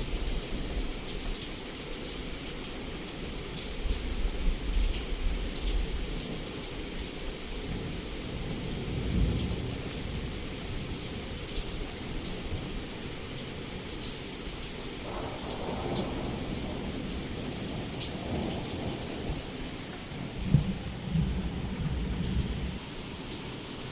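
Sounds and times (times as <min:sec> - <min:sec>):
heavy rain against a window: 0:00.0 - 0:23.9
low rolling thunder: 0:07.7 - 0:12.9, 0:15.0 - 0:22.8
sharp taps of raindrops: 0:15.1 - 0:22.3.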